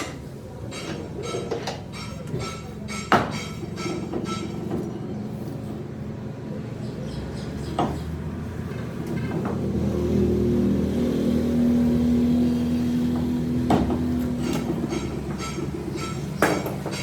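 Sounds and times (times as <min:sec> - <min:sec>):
sharp metal knocks: 0:00.0 - 0:04.9, 0:13.2 - 0:17.0
engine revving: 0:08.2 - 0:15.1.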